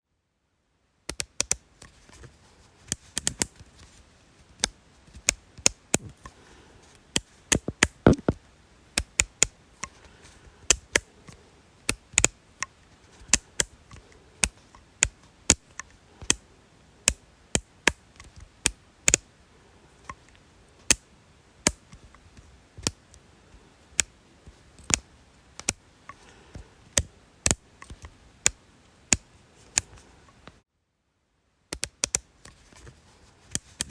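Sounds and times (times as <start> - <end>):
sharp dry clicks: 7.2 - 8.4, 10.7 - 16.4, 24.8 - 25.8, 31.7 - 32.6.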